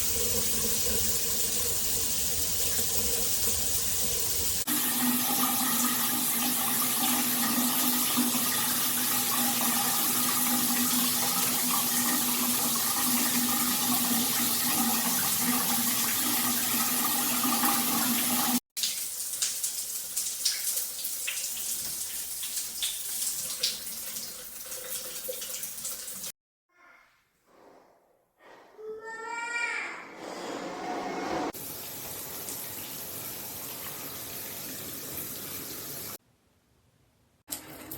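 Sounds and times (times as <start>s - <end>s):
light water patter: 18.8s - 26.3s.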